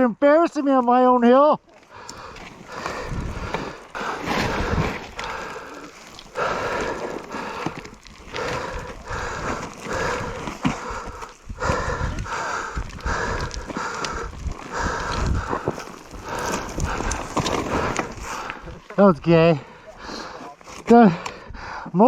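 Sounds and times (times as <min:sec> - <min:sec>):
person breathing hard: 0:01.9 - 0:18.8, 0:19.6 - 0:20.6, 0:21.2 - 0:22.0.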